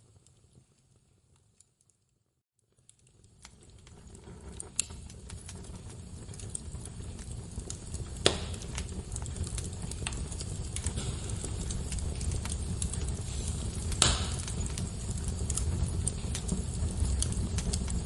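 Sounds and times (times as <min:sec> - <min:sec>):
wood fire crackling and popping: 0:02.6 - 0:18.0
low rumble of flames: 0:02.7 - 0:18.0
sharp loud pops: 0:13.9 - 0:14.5.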